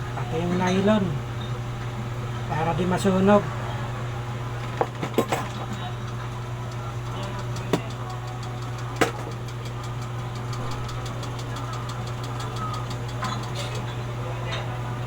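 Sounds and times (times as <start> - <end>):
low mechanical hum: 0.0 - 15.0
fast even ticking: 6.7 - 13.9.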